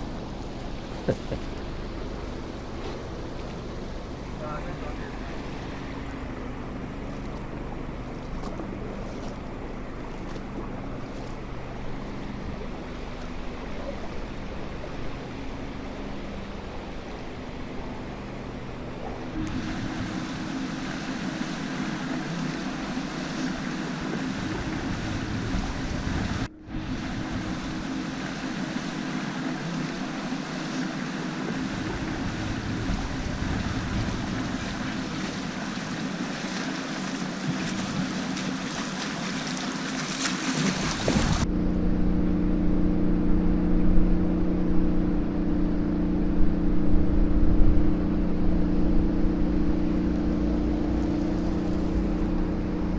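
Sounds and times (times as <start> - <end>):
river water rushing: 0.0 - 41.5, 45.2 - 52.9
wind on microphone: 24.5 - 27.9, 31.7 - 35.6, 40.6 - 41.5.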